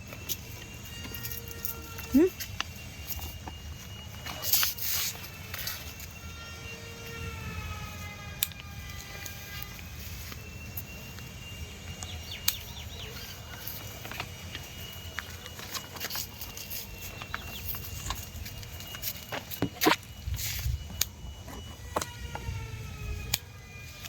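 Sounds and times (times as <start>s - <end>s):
distant siren wail: 0.0s - 24.0s
outdoor background noise: 0.0s - 24.0s
rustles and clicks: 8.0s - 24.0s.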